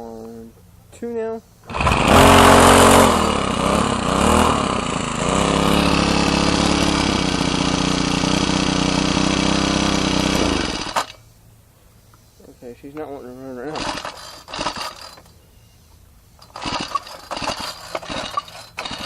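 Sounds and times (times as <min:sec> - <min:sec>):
string trimmer engine running: 0:01.7 - 0:11.2, 0:13.6 - 0:15.3, 0:16.4 - 0:19.0.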